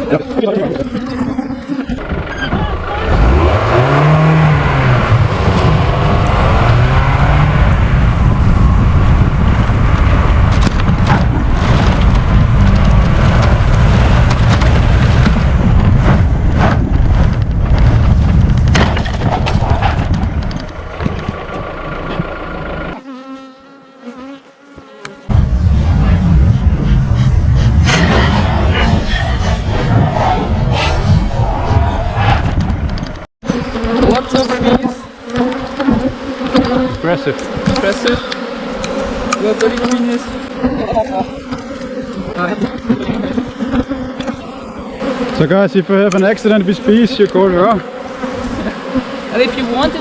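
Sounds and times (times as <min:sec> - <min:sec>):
honeybees buzzing: 0:00.0 - 0:07.6, 0:22.2 - 0:25.4, 0:33.4 - 0:50.0.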